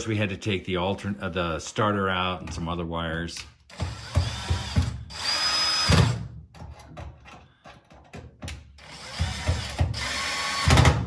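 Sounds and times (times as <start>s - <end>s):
power drill running: 3.7s - 6.2s, 8.8s - 11.0s.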